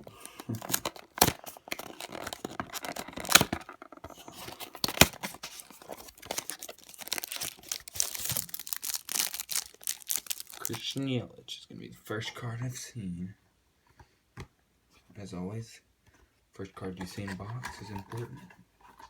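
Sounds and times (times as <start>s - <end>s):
packaging ripping and crinkling: 0.0s - 11.0s.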